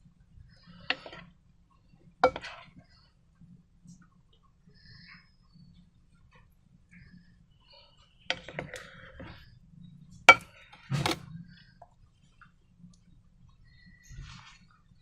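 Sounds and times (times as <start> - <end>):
rustling: 13.8 - 15.0.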